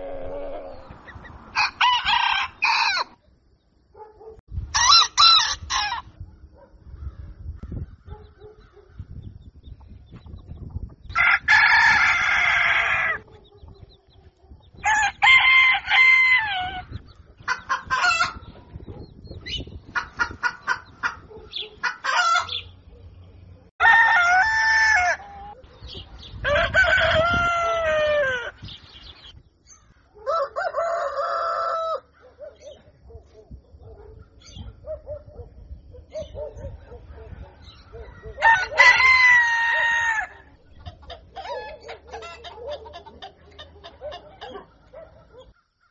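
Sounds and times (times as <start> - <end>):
chickens clucking: 0.0 - 1.5, 7.7 - 11.1, 16.9 - 23.0, 40.5 - 45.9
roosters crowing: 0.0 - 3.2, 4.7 - 6.2, 11.1 - 14.0, 14.7 - 18.7, 19.9 - 22.8, 23.8 - 29.3, 29.9 - 32.7, 36.9 - 45.9.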